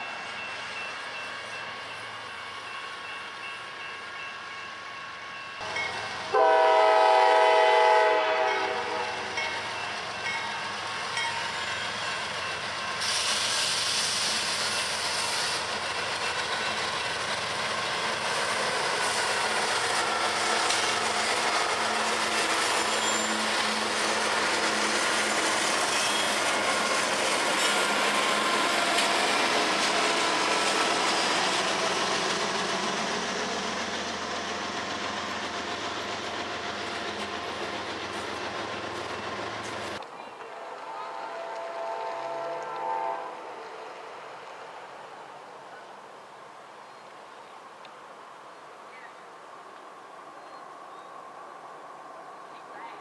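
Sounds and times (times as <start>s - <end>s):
freight train passing: 0.0s - 53.0s
locomotive air horn blast: 6.3s - 9.3s, 40.6s - 43.8s.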